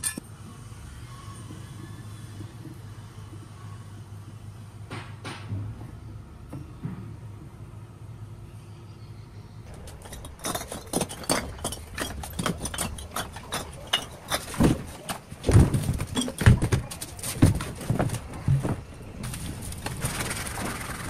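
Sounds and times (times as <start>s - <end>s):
heavy thuds: 9.7s - 19.4s
knocks and clatters: 9.7s - 21.0s.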